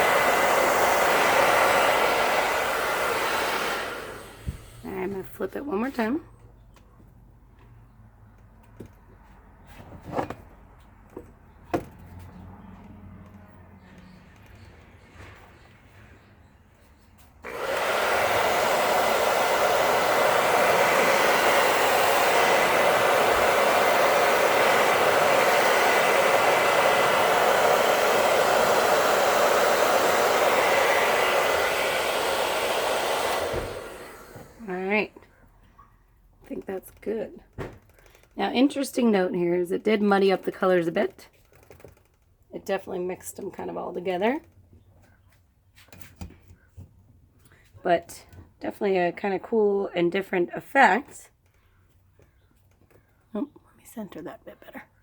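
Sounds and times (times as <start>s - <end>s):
hair dryer running: 0.0s - 6.1s, 17.4s - 35.2s, 37.8s - 41.0s.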